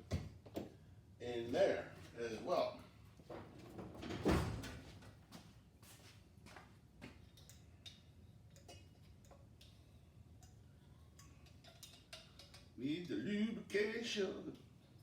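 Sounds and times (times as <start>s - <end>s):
small parts clicking: 10.4s - 12.8s.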